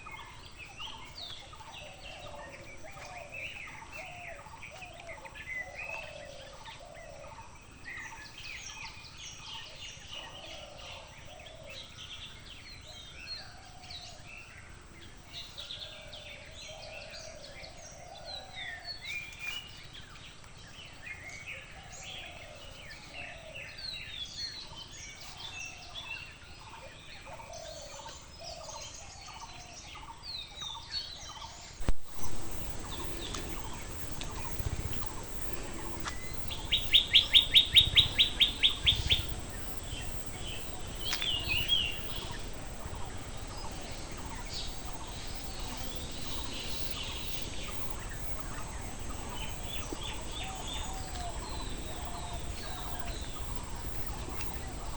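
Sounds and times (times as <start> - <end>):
birds chattering and calling: 0.0 - 54.9
low rumbling noise: 31.8 - 54.9.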